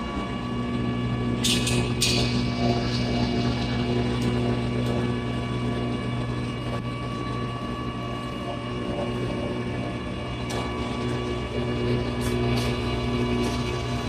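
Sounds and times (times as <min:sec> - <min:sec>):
machine drone: 0:00.0 - 0:14.0.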